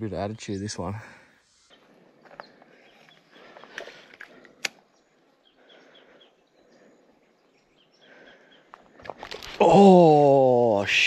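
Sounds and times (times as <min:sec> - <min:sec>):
sharp clicks: 0:03.6 - 0:04.9.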